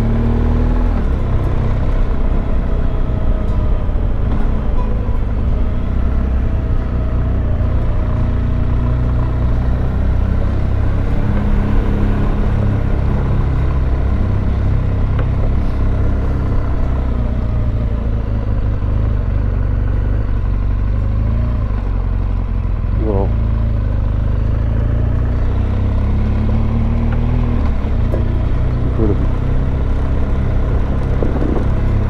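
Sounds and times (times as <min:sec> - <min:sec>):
motorcycle engine running: 0:00.0 - 0:32.0
low wind rumble on microphone: 0:25.7 - 0:32.0.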